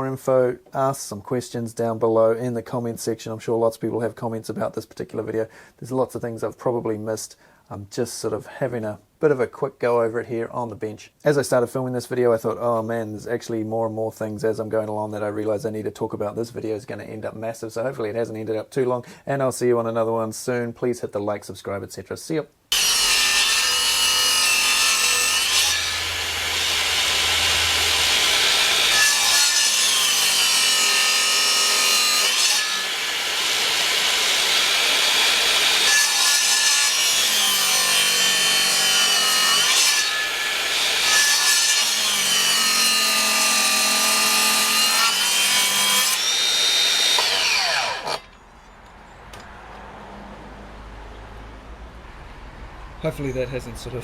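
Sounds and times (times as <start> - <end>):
circular saw cutting: 22.7 - 48.4.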